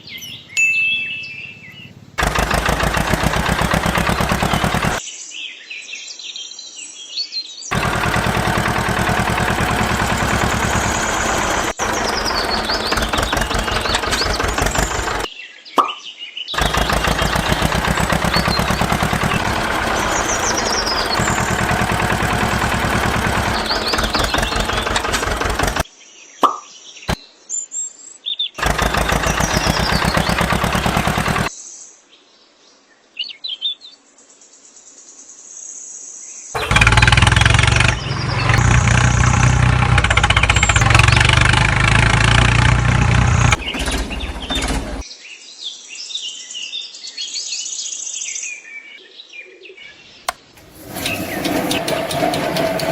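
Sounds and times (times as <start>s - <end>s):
birds chirping: 0.0s - 5.0s, 7.7s - 25.8s, 28.6s - 31.5s, 36.6s - 45.0s, 49.8s - 52.9s
small engine running: 2.2s - 5.0s, 7.7s - 15.3s, 16.6s - 25.8s, 28.6s - 31.5s, 36.6s - 45.0s, 50.6s - 52.9s.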